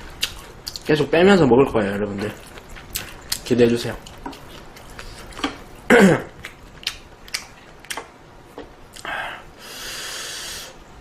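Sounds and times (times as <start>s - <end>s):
mouth clicks chewing: 6.4s - 8.1s.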